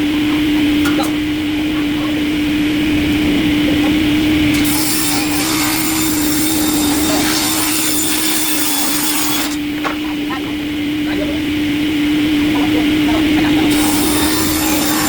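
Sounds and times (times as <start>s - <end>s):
machine humming: 0.0s - 15.0s
wood being cut rasping: 2.8s - 9.8s, 13.1s - 15.0s.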